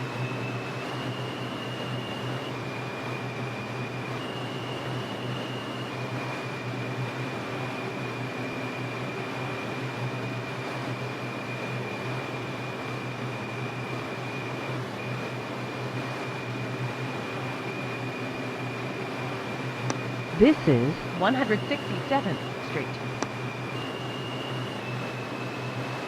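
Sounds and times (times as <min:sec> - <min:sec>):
high whine: 0:19.9 - 0:25.1.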